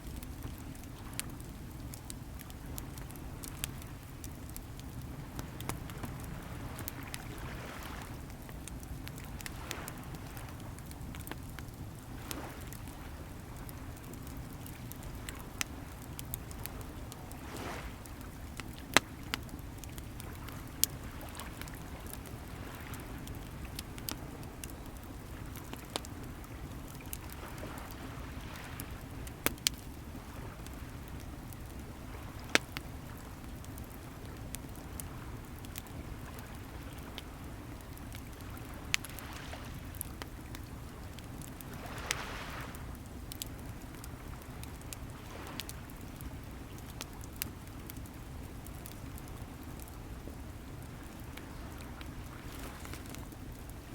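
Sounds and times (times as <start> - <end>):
fire popping: 0.0 - 53.9
wood fire crackling: 0.0 - 53.9
sea waves rumbling: 41.7 - 42.8.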